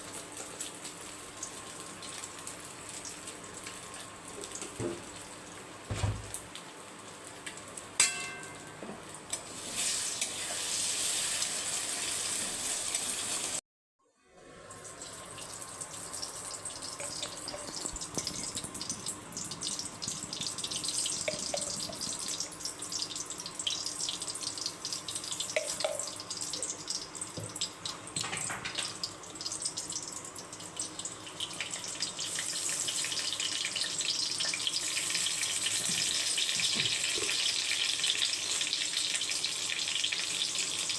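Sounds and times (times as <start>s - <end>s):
food sizzling in a pan: 0.0s - 13.6s, 14.4s - 40.9s
short metallic clink: 8.0s - 8.7s.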